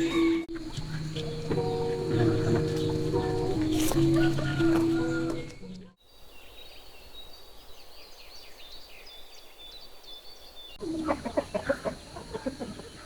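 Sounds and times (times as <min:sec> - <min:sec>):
chickens clucking: 0:00.0 - 0:06.0, 0:10.8 - 0:13.0
birds chirping: 0:00.0 - 0:13.0.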